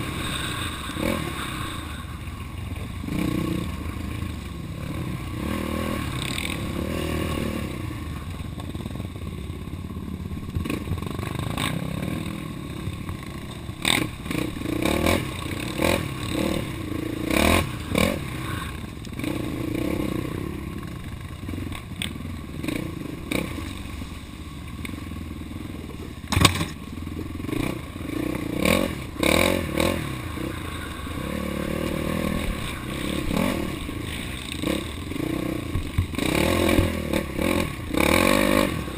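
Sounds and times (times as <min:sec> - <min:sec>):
off-road vehicle engine revving: 0:00.0 - 0:08.9, 0:10.0 - 0:24.1, 0:25.3 - 0:38.9
sharp knocks and clatters: 0:26.3 - 0:26.8.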